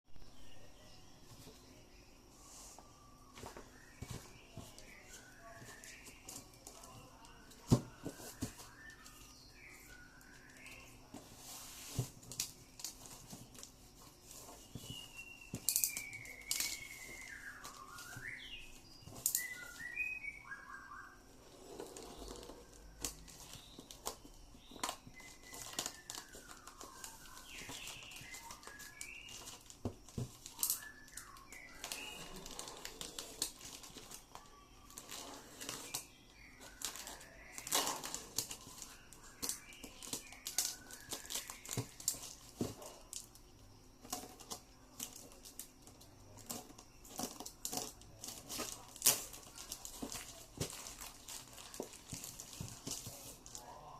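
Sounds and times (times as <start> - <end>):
packaging crinkling: 21.9 - 43.4, 44.0 - 53.7.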